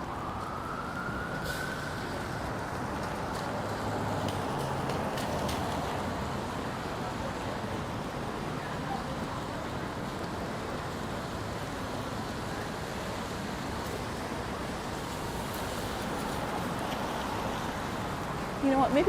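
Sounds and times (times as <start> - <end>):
rain hiss: 0.0 - 19.0
traffic on wet streets: 0.0 - 19.0.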